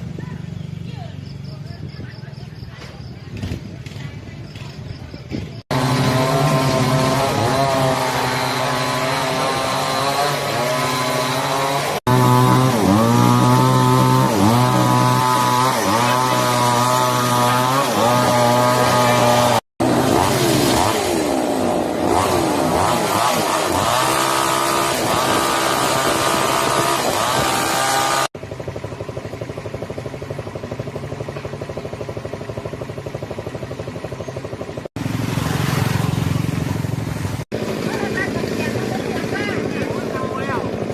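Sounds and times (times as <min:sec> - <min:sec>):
small petrol engine running: 0:03.3 - 0:40.9.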